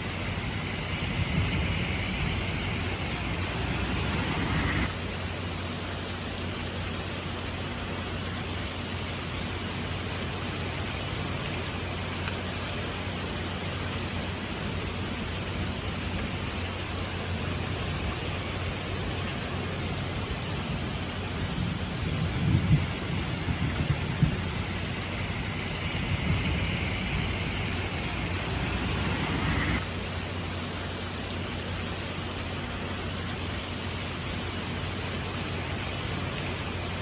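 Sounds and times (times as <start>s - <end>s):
rain falling hiss: 0.0s - 37.0s
low rumble: 0.2s - 4.9s, 21.9s - 29.8s.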